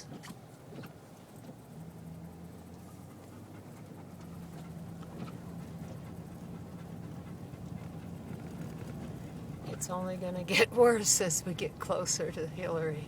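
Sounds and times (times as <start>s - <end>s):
car engine hum: 0.0s - 13.0s
dog panting: 2.6s - 10.5s.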